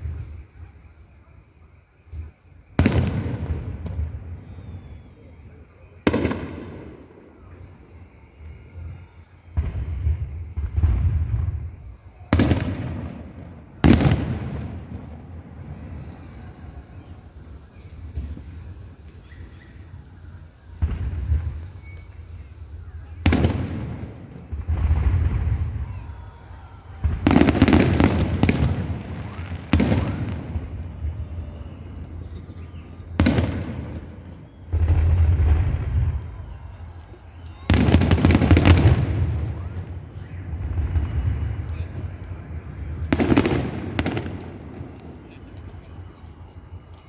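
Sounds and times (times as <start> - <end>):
firework shells bursting: 9.6 - 39.9.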